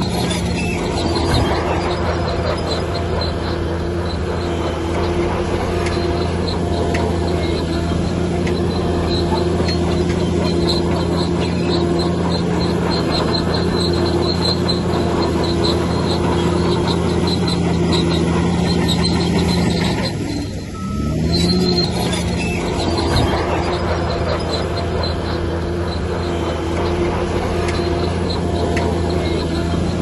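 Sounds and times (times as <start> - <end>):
bulldozer diesel engine: 0.0 - 30.0
steel tracks squeaking: 0.0 - 30.0.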